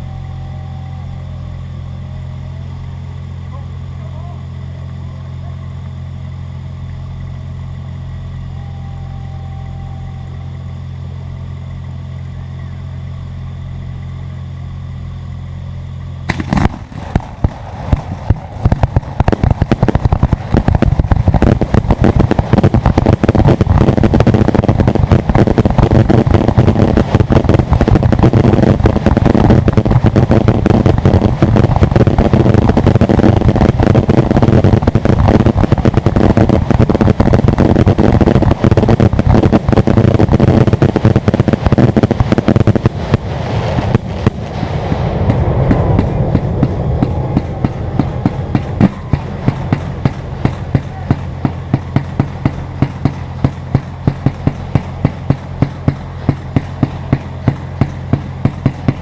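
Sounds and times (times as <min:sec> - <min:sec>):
low hum: 0:00.0 - 0:59.0
fireworks barrage of bangs: 0:16.2 - 0:59.0.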